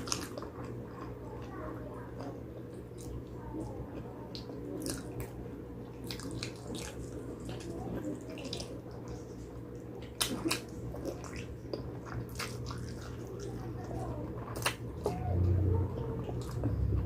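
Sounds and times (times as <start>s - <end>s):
steady low hum: 0.0s - 17.0s
wet chewing and lip smacks: 4.3s - 7.6s, 8.4s - 15.2s.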